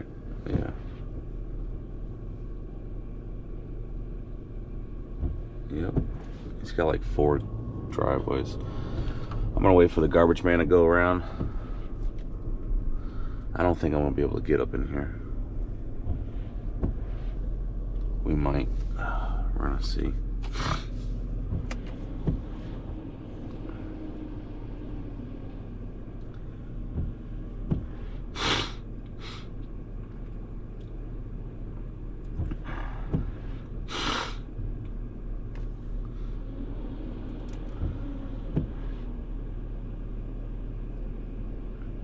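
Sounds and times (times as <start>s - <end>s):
truck engine idling: 0.0s - 42.0s
short loud hisses: 28.4s - 29.5s, 33.9s - 34.4s.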